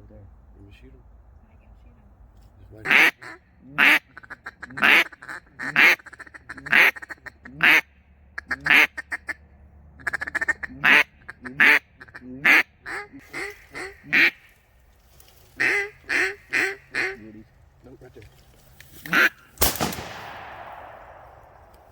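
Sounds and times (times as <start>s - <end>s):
duck chuckling chatter: 2.8s - 7.8s, 10.0s - 14.5s, 15.6s - 17.4s
duck quacking: 2.8s - 9.4s, 10.0s - 14.6s, 15.6s - 17.4s, 19.1s - 19.4s.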